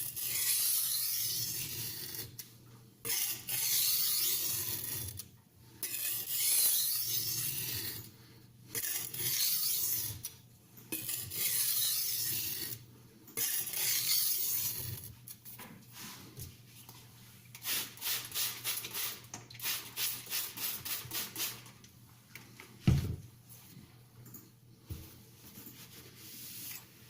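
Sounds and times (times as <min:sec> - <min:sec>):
knife rubbing on whetstone: 0:00.1 - 0:02.3, 0:03.1 - 0:05.2, 0:05.8 - 0:08.1, 0:08.8 - 0:10.3, 0:10.9 - 0:12.8, 0:13.4 - 0:15.1.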